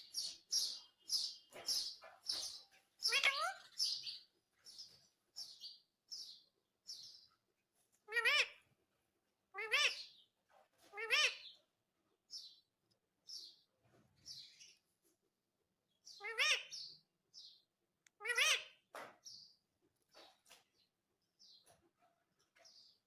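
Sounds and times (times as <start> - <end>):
parrot calling: 3.0 - 4.1, 8.1 - 8.7, 9.6 - 10.2, 10.9 - 11.6, 16.2 - 16.8, 18.2 - 18.8
parrot high chirps: 3.0 - 4.2, 8.1 - 8.7, 9.5 - 10.2, 10.9 - 11.6, 16.1 - 16.9, 18.2 - 18.8.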